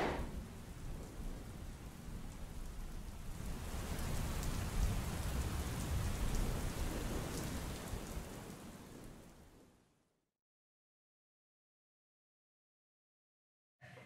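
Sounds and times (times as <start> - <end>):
steady rain: 0.0 - 10.2.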